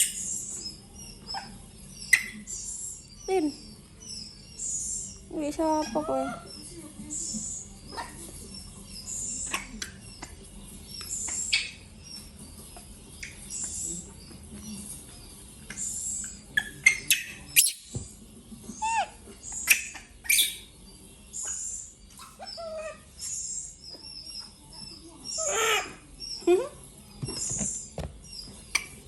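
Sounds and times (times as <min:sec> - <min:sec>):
sharp squeaks and clicks: 0:15.7 - 0:18.0, 0:27.2 - 0:29.0
short high animal chirps: 0:17.6 - 0:17.8.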